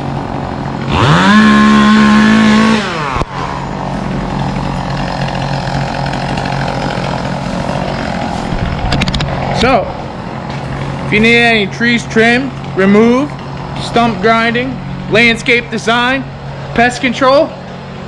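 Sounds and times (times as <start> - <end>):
chainsaw revving: 0.0 - 9.7
steady engine drone: 0.0 - 18.0.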